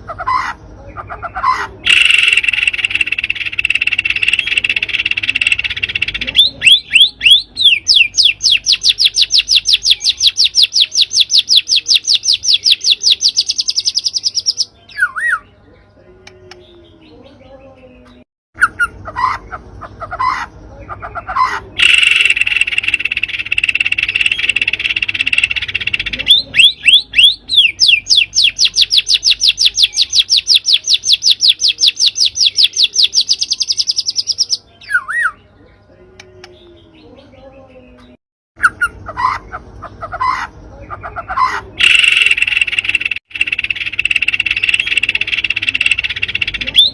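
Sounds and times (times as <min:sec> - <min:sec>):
single bird calls: 0:01.4 - 0:15.4
bird fast repeated sharp notes: 0:01.8 - 0:14.7, 0:21.8 - 0:34.4, 0:41.8 - 0:46.9.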